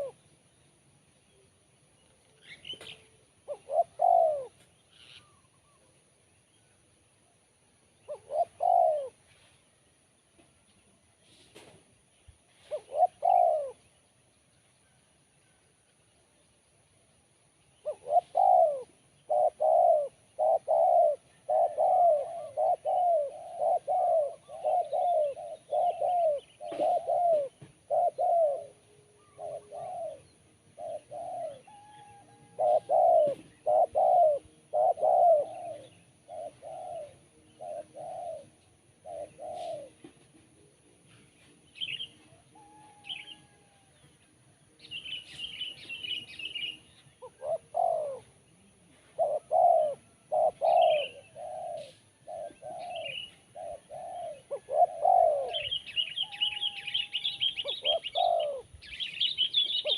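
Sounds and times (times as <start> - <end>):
dove cooing: 0.0 - 0.3, 2.4 - 6.0, 8.0 - 9.5, 12.6 - 14.0, 17.8 - 44.0, 44.8 - 59.9
small bird high chirps: 55.4 - 59.9.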